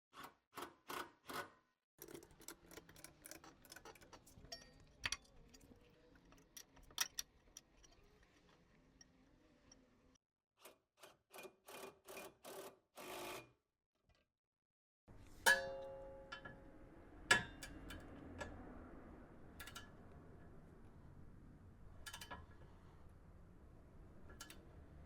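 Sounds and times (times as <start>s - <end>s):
sharp metal clank with ringing: 15.5s - 16.5s.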